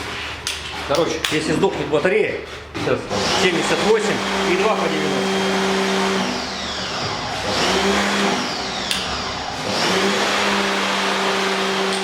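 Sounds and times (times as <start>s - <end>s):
machine humming: 3.1s - 12.0s
high whine winding down: 3.2s - 12.0s.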